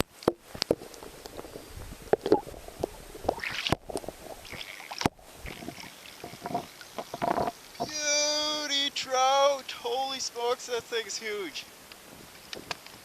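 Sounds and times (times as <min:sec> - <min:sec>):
water splashing against canoe: 0:00.0 - 0:08.6.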